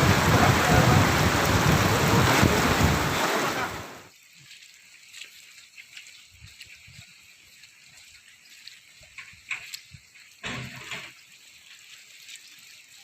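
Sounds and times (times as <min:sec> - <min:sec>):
wind buffeting microphone: 0:00.0 - 0:03.6
heavy rain: 0:00.0 - 0:04.2
faint rain patter: 0:00.0 - 0:13.0.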